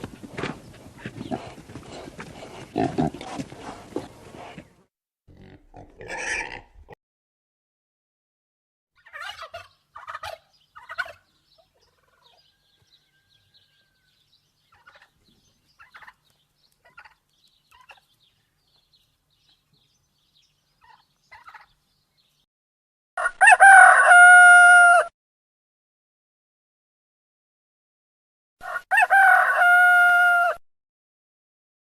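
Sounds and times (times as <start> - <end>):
chickens clucking: 0.0 - 4.7, 9.0 - 12.5, 14.7 - 18.3, 20.8 - 21.8
rooster crowing: 12.4 - 14.2, 23.2 - 25.1, 28.6 - 30.6.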